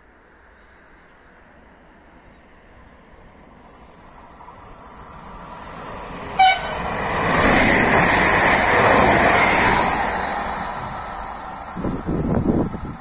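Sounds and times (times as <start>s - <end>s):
electric train passing: 0.2s - 13.0s
train horn toot: 6.3s - 6.9s.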